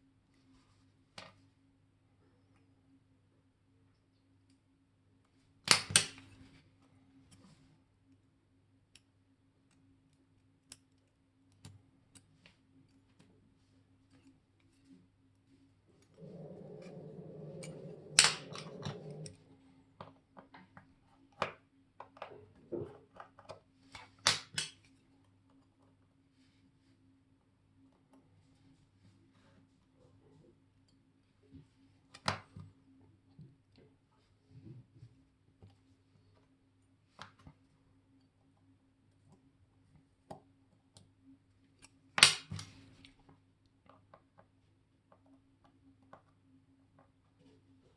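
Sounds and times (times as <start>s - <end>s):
faint steady hum: 6.2s - 24.0s
low rubbing noise: 15.9s - 19.7s.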